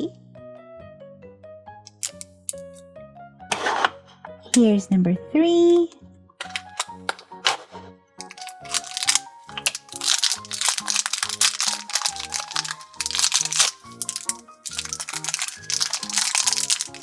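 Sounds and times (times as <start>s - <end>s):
plastic wrapper crinkling: 1.9s - 2.8s, 6.4s - 7.1s, 8.2s - 17.0s.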